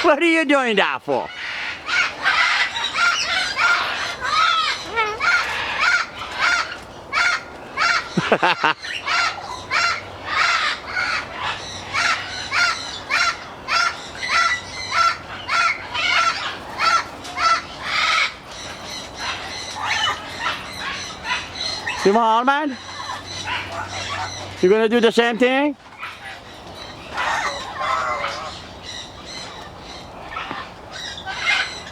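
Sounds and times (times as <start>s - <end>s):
cockatoo harsh calls: 1.1s - 31.9s.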